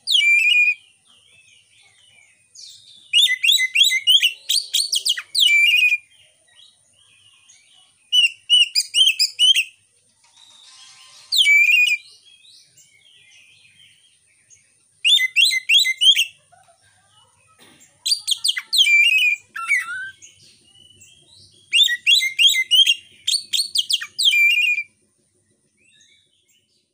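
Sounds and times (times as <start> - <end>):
bird singing whistled chattering notes: 0.0 - 1.0, 2.6 - 6.2, 7.5 - 16.4, 18.0 - 25.0.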